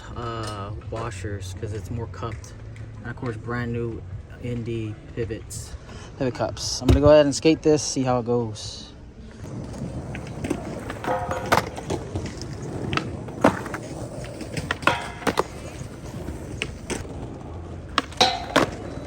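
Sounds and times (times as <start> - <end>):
skateboard wheels rumbling: 9.1 - 19.0
skateboard clacking on ground: 9.4 - 19.0.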